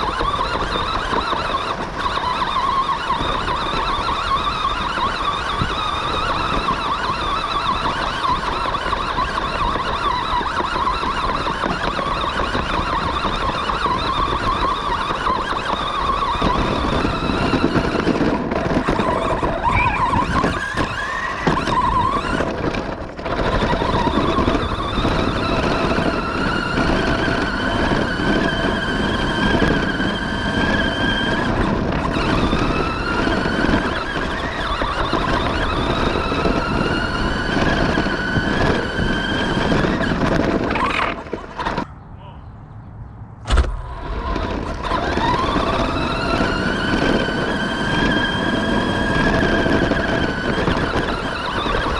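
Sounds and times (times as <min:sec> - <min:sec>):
toy truck motor whining: 0:00.0 - 0:41.9, 0:43.8 - 0:51.9
steady rushing noise: 0:35.4 - 0:51.9.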